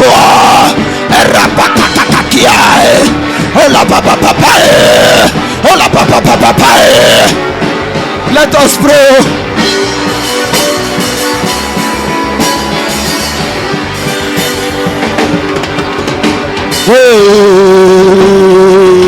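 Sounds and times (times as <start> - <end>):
loud voice crying out: 0.0 - 7.5
drum kit beating: 0.0 - 19.0
sustained guitar or keyboard notes: 0.0 - 19.0.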